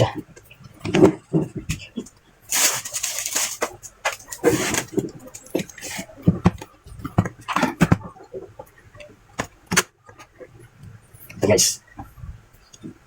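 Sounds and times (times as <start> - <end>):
rustling and scraping on workbench: 2.5 - 6.1.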